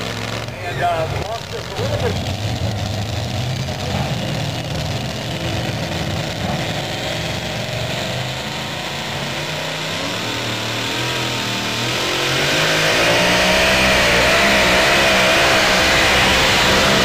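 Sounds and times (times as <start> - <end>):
truck engine at high revs: 0.0 - 17.0.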